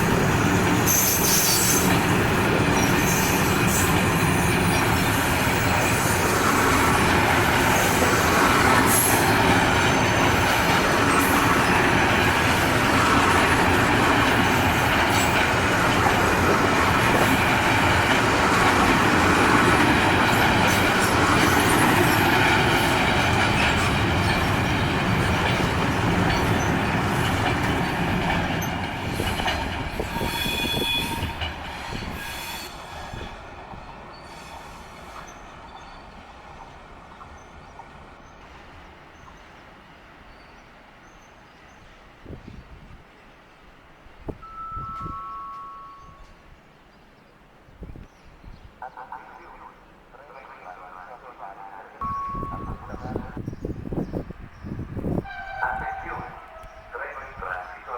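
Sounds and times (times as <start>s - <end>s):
high squeal of train wheels: 0.0s - 12.7s, 14.2s - 17.5s, 19.7s - 37.8s, 44.4s - 46.5s, 52.0s - 57.0s
train rumbling past: 0.0s - 57.9s.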